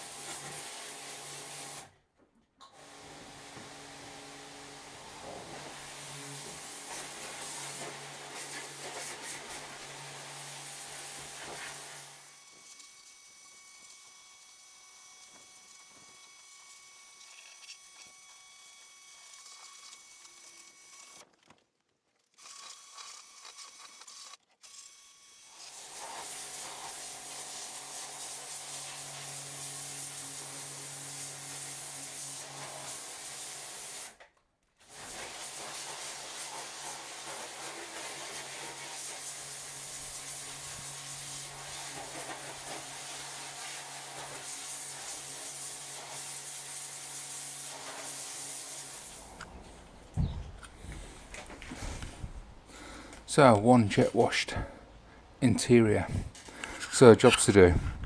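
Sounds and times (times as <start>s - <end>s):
pressure washer motor humming: 9.8s - 21.2s.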